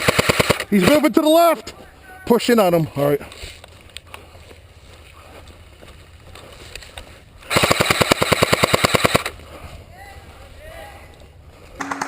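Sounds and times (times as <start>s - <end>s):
airsoft gun automatic burst: 0.0s - 1.0s, 7.5s - 9.3s.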